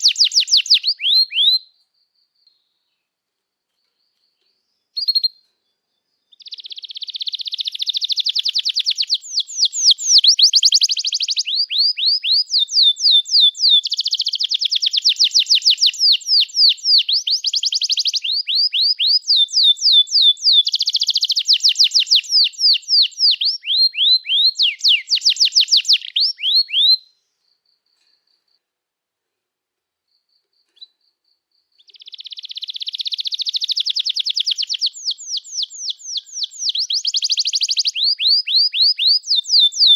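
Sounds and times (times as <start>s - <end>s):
canary singing trills: 0.0s - 2.9s, 3.7s - 27.2s, 30.6s - 39.9s.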